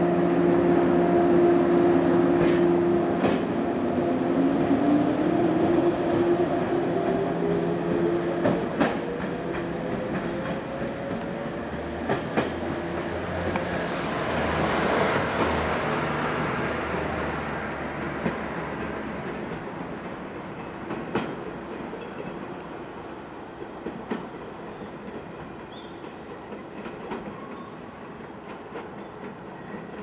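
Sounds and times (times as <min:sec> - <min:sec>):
wheel clacks over rail joints: 0:08.4 - 0:13.7, 0:18.2 - 0:22.7, 0:23.8 - 0:30.0.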